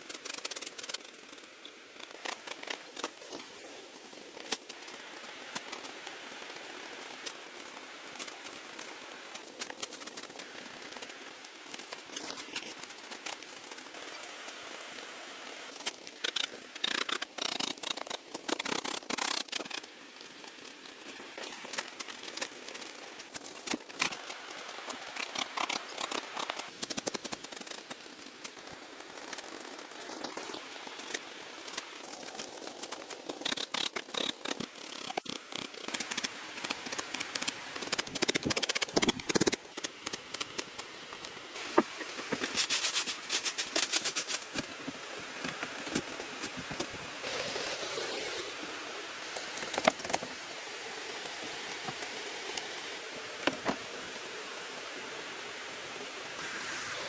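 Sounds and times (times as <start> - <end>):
bamboo clicking and snapping: 32.9 - 41.9.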